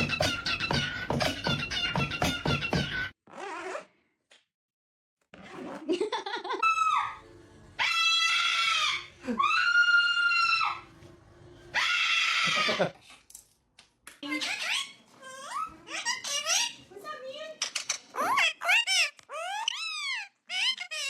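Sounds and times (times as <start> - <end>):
music: 0.0 - 3.1, 7.2 - 7.8, 10.8 - 11.8
parrot screeching: 6.6 - 7.2, 7.8 - 10.9, 11.7 - 13.0, 14.3 - 16.9, 18.1 - 21.0.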